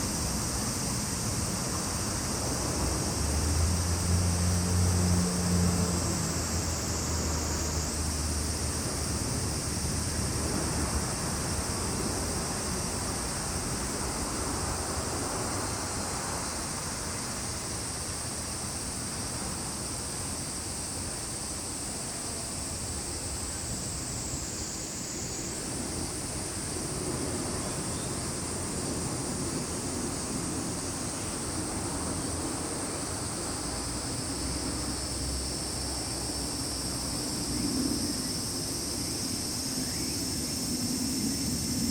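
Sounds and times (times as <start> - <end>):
insects droning shrilly: 0.0 - 41.9
lower insect drone: 0.0 - 41.9.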